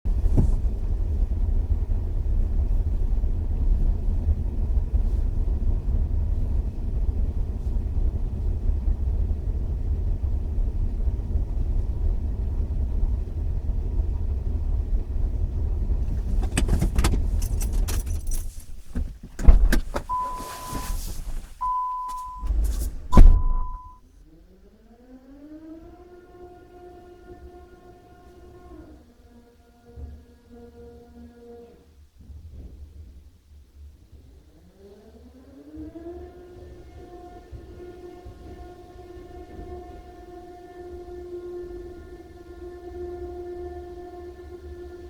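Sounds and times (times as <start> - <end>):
car engine idling: 0.1 - 24.0
loud thump: 19.0 - 21.5, 22.4 - 23.9
short electronic beeps: 20.1 - 21.0, 21.6 - 24.0.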